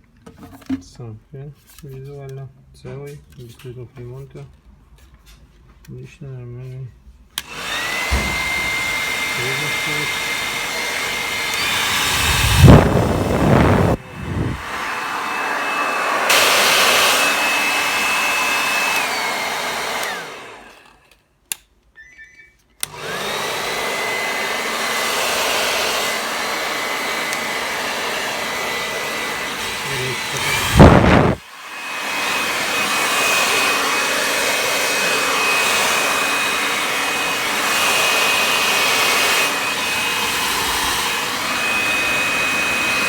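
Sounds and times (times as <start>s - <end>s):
hair dryer running: 7.4s - 21.2s, 22.8s - 43.0s
loud gusts of air: 11.6s - 15.0s, 29.7s - 31.4s.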